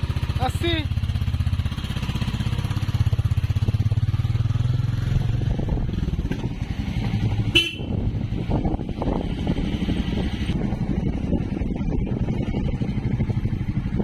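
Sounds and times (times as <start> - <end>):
motorcycle engine pulsing: 0.0 - 14.0
road and wind noise: 0.0 - 14.0
horn beep: 7.5 - 7.9.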